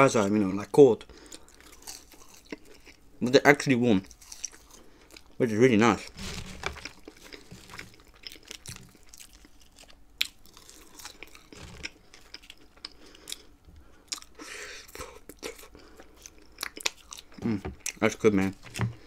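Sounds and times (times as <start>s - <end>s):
person chewing food: 1.2s - 3.0s, 4.0s - 5.4s, 6.0s - 18.0s.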